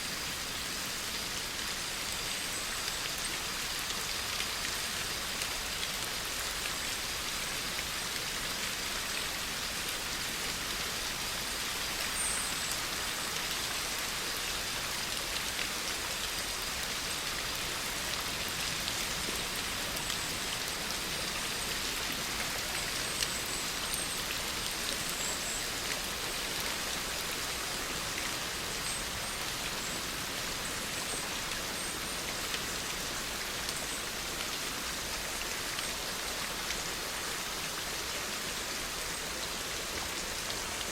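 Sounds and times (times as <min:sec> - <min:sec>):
steady rain hiss: 0:00.0 - 0:40.9
raindrops pattering: 0:12.4 - 0:36.8.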